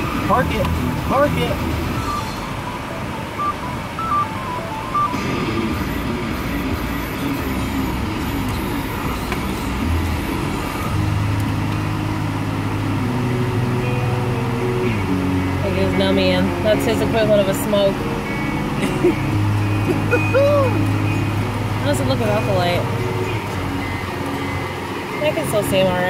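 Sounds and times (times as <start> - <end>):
car engine rumble inside cabin: 0.0 - 26.0
high electronic beeps: 1.1 - 11.1
steady low hum: 3.4 - 26.0.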